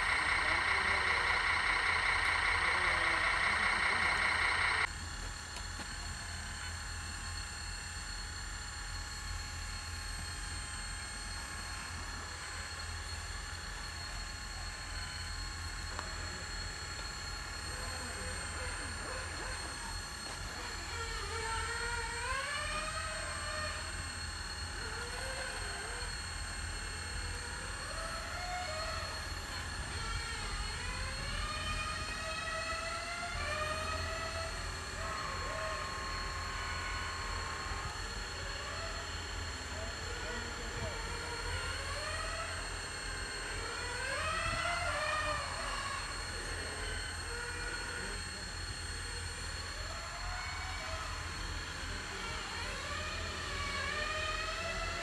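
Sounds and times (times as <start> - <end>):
excavator low hum: 0.0 - 5.0
high-pitched whine: 0.0 - 55.0.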